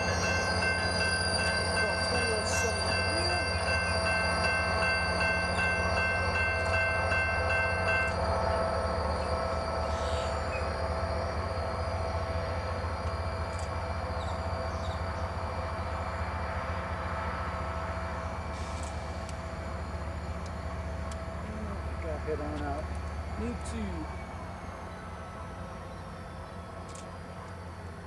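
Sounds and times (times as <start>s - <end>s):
bell ringing quickly: 0.0s - 8.1s
train rumble: 0.0s - 28.0s.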